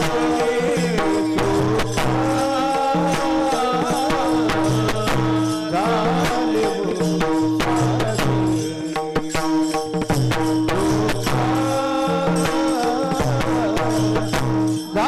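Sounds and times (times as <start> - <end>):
person singing: 0.0 - 9.0
percussion strikes: 0.0 - 15.0.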